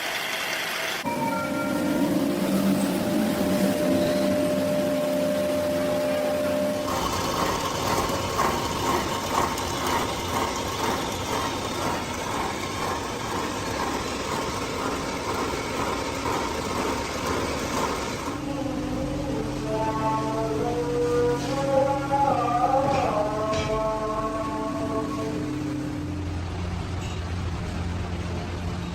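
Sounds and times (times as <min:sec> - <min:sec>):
machinery rattling: 0:06.6 - 0:18.8.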